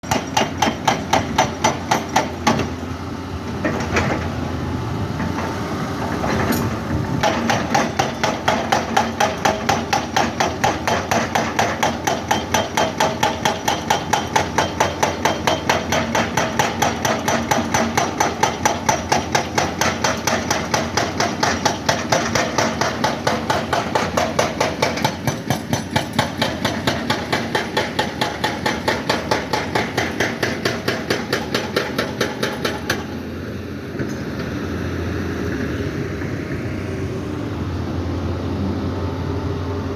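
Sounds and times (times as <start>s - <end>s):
rapid hammering impacts: 7.2s - 33.1s.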